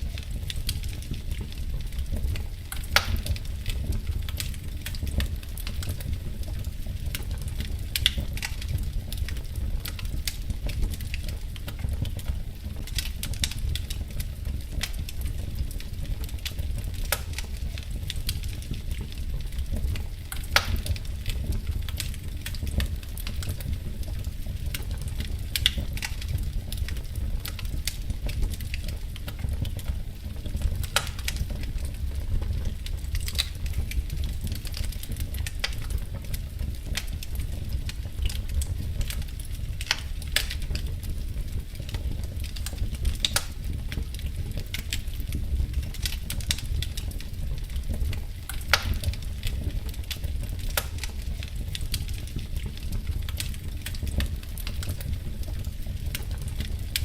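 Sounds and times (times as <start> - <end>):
low rumble of flame: 0.0 - 57.0
wood fire crackling: 0.0 - 57.0
loud sharp pop of fire: 2.2 - 6.0, 19.8 - 23.6, 30.8 - 31.4, 42.6 - 43.8, 48.5 - 49.2.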